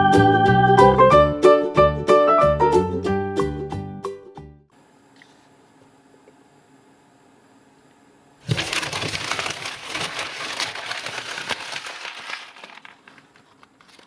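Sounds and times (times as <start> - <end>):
plastic packaging crinkling: 8.4 - 14.0.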